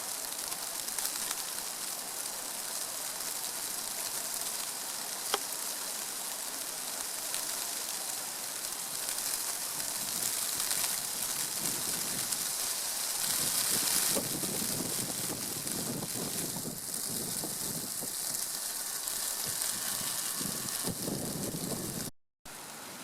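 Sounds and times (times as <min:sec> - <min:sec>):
rain hissing on surfaces: 0:00.0 - 0:23.0
low rumble of wind: 0:09.6 - 0:22.1.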